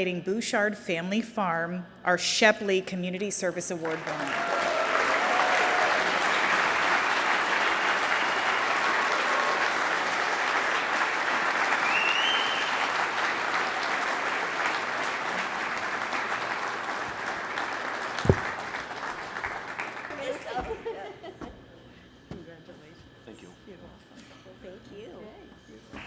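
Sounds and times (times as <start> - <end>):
crowd applauding: 3.8 - 20.6.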